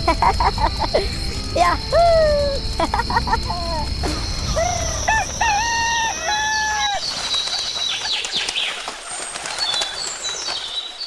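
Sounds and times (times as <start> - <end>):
small birds chirping: 0.0 - 11.0
rooster crowing: 1.9 - 7.1.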